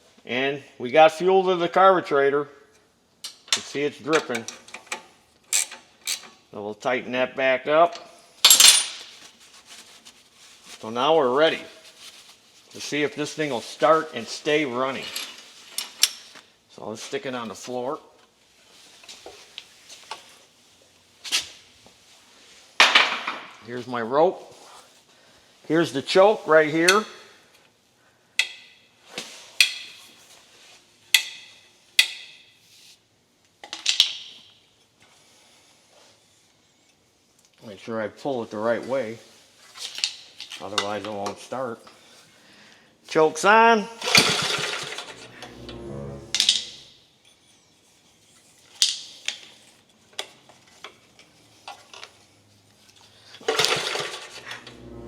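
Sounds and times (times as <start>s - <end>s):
metal parts clinking: 8.4s - 9.0s
engine turning over: 44.0s - 45.2s, 53.5s - 54.7s
starter rope pulled: 44.0s - 46.8s.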